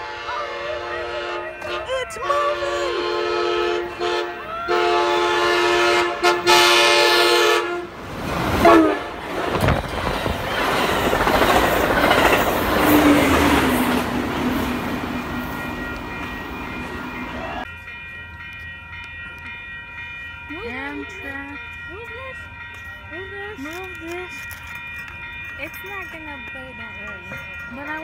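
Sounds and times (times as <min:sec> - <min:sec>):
train horn blasts: 0:00.0 - 0:09.6
train rushing past on rails: 0:00.0 - 0:23.4.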